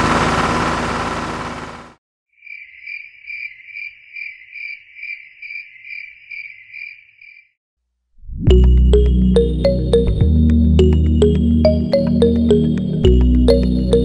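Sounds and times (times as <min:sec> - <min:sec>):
cricket chirping: 0:02.4 - 0:07.6.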